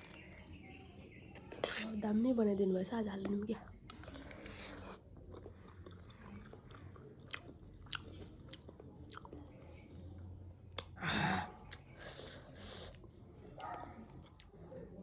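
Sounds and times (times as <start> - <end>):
person chewing crunchy snack: 3.9 - 9.4.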